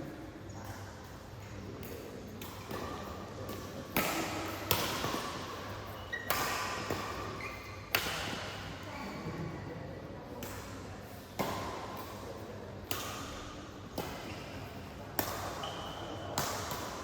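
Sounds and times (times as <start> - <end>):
rackets hitting shuttlecock: 1.8 - 8.7, 11.4 - 17.0.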